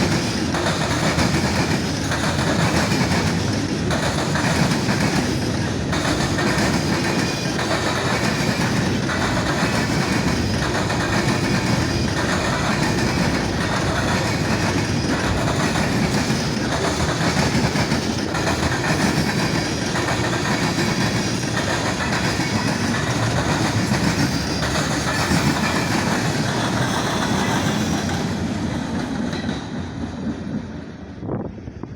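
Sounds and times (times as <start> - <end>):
wheels clacking over rail joints: 0.0 - 30.3
freight train rumble: 0.0 - 31.9.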